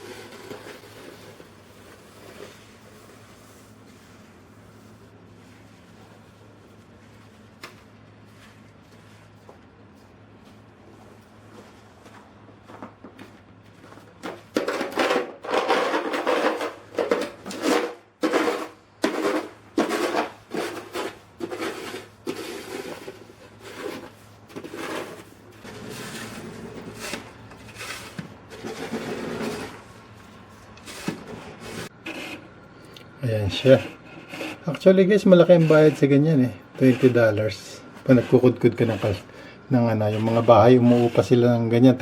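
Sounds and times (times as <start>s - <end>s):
snow shovel scraping snow: 17.5s - 29.8s.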